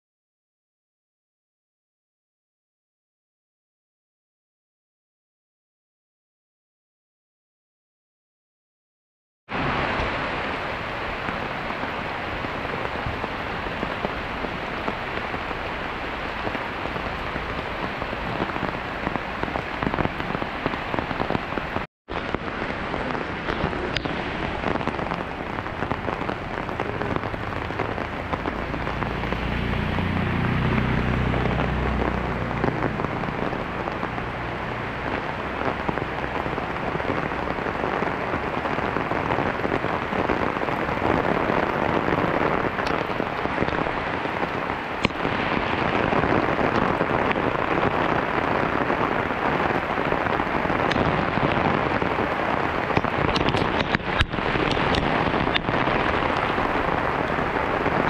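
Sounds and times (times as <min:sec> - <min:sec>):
rain pouring on leaves and water: 0:09.5 - 0:58.0
low rumble: 0:22.4 - 0:35.9.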